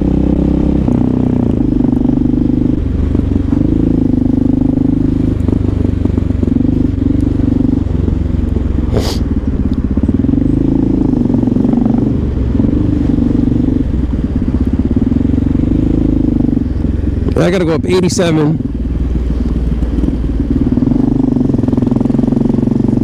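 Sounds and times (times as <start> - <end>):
motorcycle engine running: 0.0 - 23.0
short hiss: 8.9 - 9.3.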